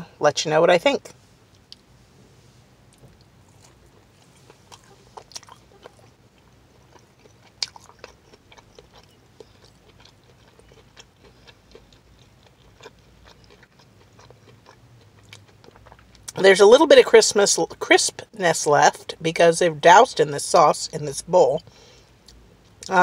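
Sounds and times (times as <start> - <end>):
chewing crunches: 2.9 - 16.4.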